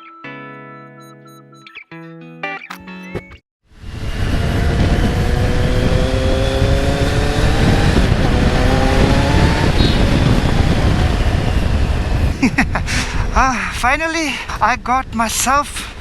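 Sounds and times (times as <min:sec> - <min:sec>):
wind and road noise: 0:03.7 - 0:16.0
motorcycle engine under throttle: 0:03.8 - 0:12.2.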